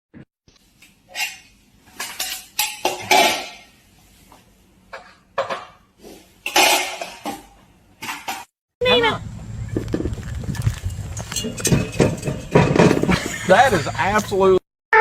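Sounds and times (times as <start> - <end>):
sharp clatters and knocks: 9.7 - 13.2.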